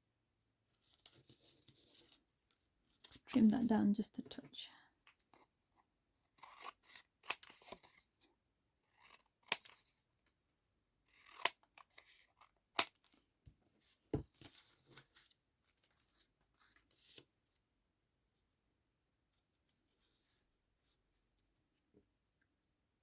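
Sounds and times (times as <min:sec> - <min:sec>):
scissors snipping paper: 0:06.4 - 0:08.0, 0:08.9 - 0:09.9, 0:11.1 - 0:13.0.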